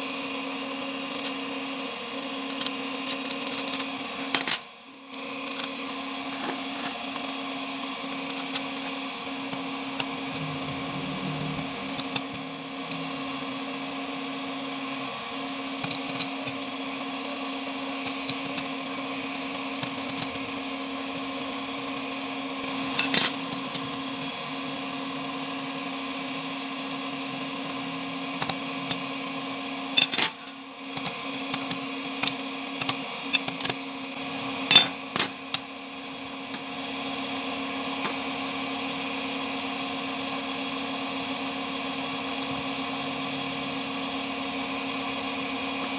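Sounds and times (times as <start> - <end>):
machine hum: 0.0 - 2.2, 6.0 - 33.3, 33.9 - 45.9
metal tools clinking: 3.2 - 4.7, 22.9 - 23.6, 30.0 - 30.7, 34.7 - 35.4.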